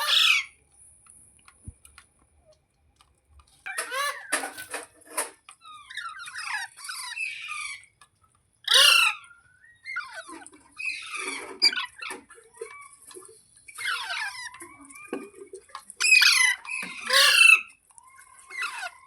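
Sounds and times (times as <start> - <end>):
parrot squawking and chattering: 0.0 - 0.6, 3.7 - 4.8, 5.6 - 8.0, 8.6 - 13.0, 13.7 - 15.3, 15.9 - 19.0.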